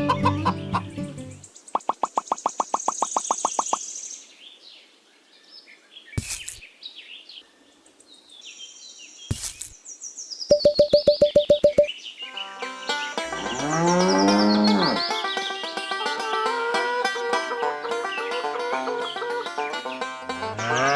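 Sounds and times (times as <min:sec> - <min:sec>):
small birds chirping and trilling: 0:01.4 - 0:12.3, 0:13.4 - 0:15.6
rapid repeated pulses: 0:10.5 - 0:11.9
sharp knocks: 0:10.5 - 0:11.9.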